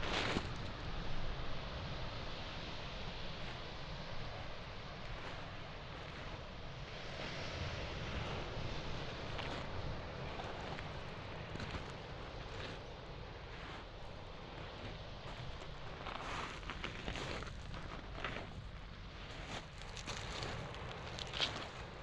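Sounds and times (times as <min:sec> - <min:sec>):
low wind rumble: 0:00.0 - 0:22.0
waves on pebble shore: 0:00.0 - 0:22.0
footsteps on pebbles: 0:11.6 - 0:12.8, 0:15.3 - 0:18.7, 0:19.3 - 0:22.0.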